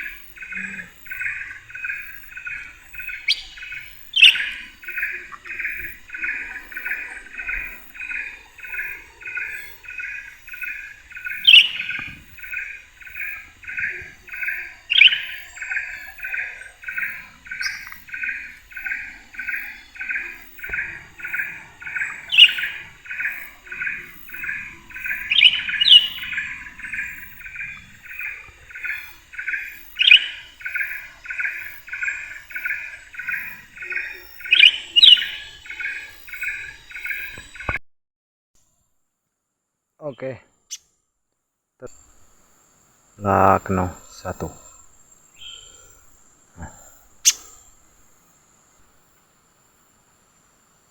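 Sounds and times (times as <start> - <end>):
repeated short bird call: 0.0 - 26.6, 46.6 - 47.6
sharp bird chirp: 0.0 - 37.8, 47.2 - 47.6.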